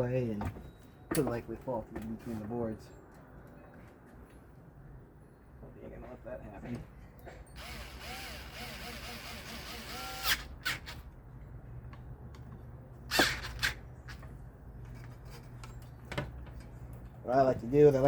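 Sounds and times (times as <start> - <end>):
clicks and knocks of fan hardware: 13.2 - 17.1.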